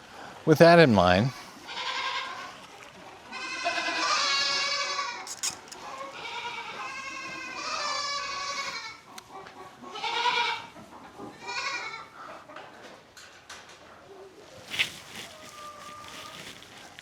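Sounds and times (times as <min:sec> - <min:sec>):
goats bleating: 0:01.4 - 0:02.6, 0:03.2 - 0:09.1, 0:09.9 - 0:10.8, 0:11.4 - 0:12.2.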